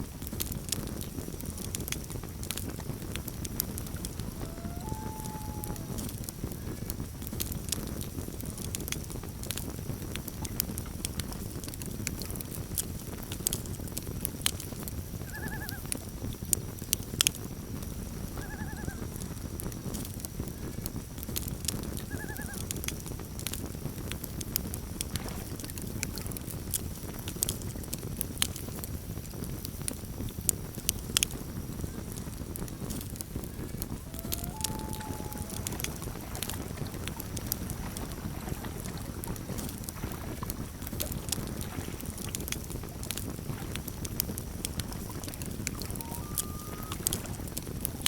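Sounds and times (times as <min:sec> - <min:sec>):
campfire crackling and popping: 0:00.0 - 0:48.0
low rumble of campfire: 0:00.0 - 0:48.0
short pitched animal calls: 0:04.2 - 0:06.1, 0:33.6 - 0:37.0, 0:45.8 - 0:47.3.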